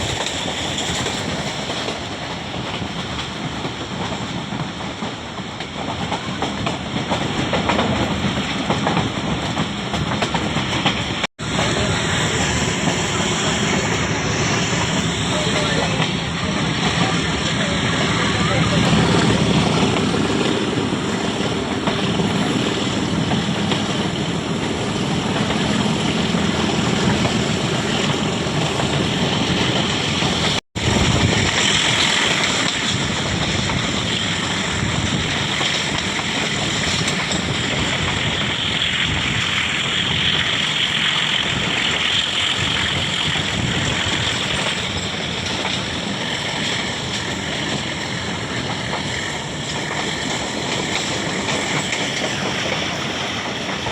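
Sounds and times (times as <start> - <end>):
train rushing and rumbling: 0.0 - 53.9
wind on microphone: 12.2 - 53.9.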